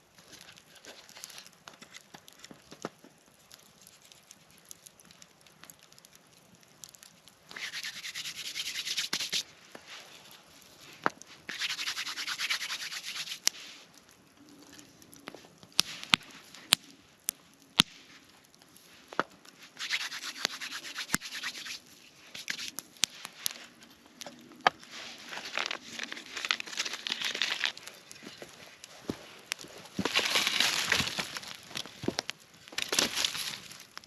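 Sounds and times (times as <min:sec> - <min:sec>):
fast rasping scraping: 0:07.6 - 0:09.4, 0:11.5 - 0:13.4, 0:19.8 - 0:21.8.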